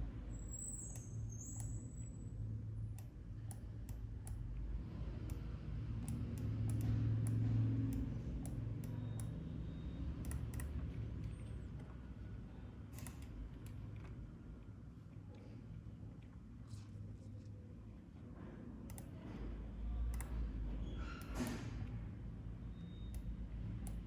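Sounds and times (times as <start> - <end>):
computer mouse and keyboard clicks: 5.2 - 9.4, 10.2 - 12.0, 12.9 - 14.2, 18.8 - 22.0, 23.1 - 24.0.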